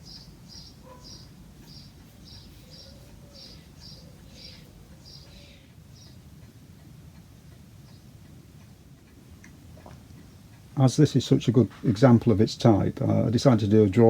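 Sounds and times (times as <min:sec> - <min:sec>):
small bird chirping: 0:00.0 - 0:06.5.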